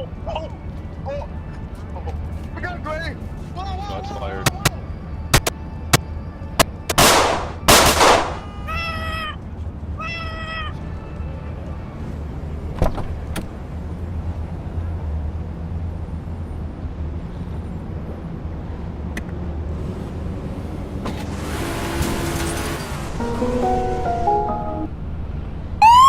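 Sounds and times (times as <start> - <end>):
sharp cracks: 6.6 - 8.5
loud blasts: 6.9 - 8.5.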